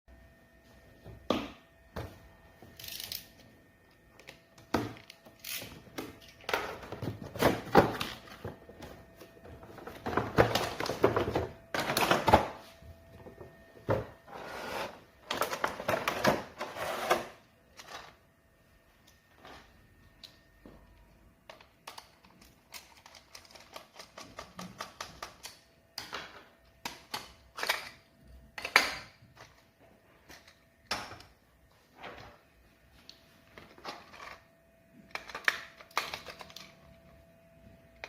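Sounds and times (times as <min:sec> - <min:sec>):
rustling of cardboard and plastic: 0:05.1 - 0:18.3.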